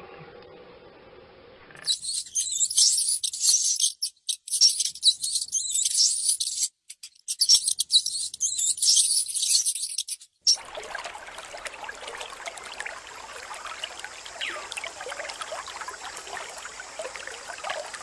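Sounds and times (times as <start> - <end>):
small animal chirping and squeaking: 1.8 - 10.6.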